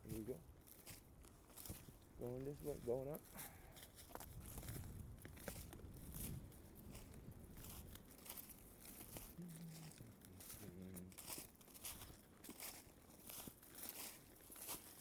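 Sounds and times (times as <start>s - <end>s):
footsteps crunching on forest floor: 0.0s - 15.0s
person humming: 9.4s - 11.1s.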